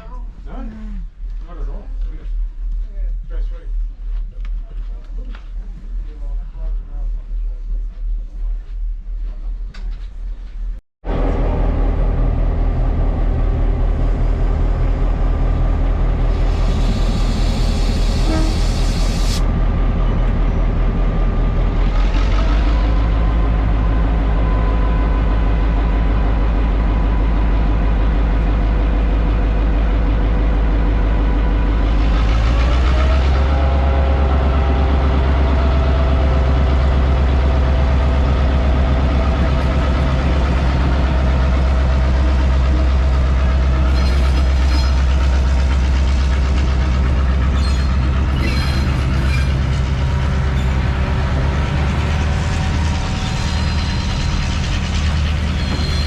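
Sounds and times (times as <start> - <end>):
train engine drone: 0.0 - 56.0
train wheels clicking and squealing: 40.9 - 56.0.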